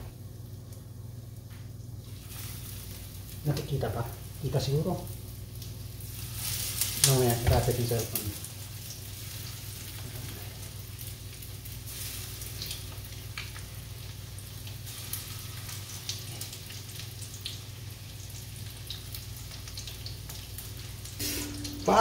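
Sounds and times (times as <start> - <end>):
steady low hum: 0.0 - 7.0, 20.6 - 22.0
fish frying in oil: 1.8 - 22.0
crackles and pops: 5.2 - 7.2, 8.0 - 21.8.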